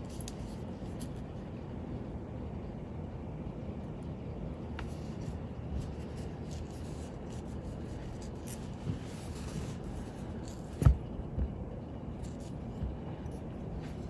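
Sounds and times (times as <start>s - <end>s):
tools scratching and rubbing: 4.9s - 10.9s, 12.2s - 14.0s.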